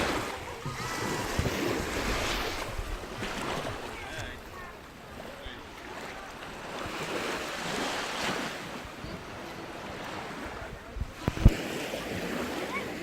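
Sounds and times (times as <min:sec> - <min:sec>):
wind buffeting microphone: 0:00.0 - 0:04.8
sea waves breaking: 0:00.0 - 0:13.0.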